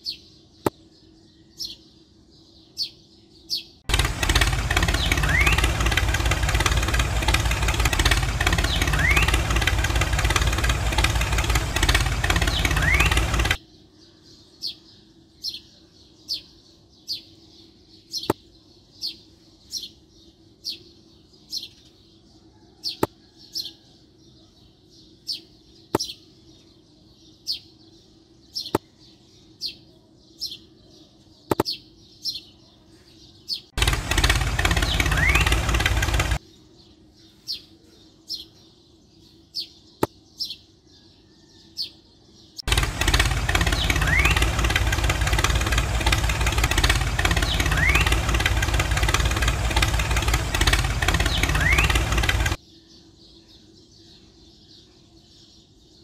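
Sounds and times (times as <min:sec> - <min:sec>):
bird chirping: 0:00.0 - 0:56.0
sharp clicks: 0:03.9 - 0:13.6, 0:33.8 - 0:36.4, 0:42.6 - 0:52.6
toy electric motor buzzing: 0:03.9 - 0:13.6, 0:33.8 - 0:36.4.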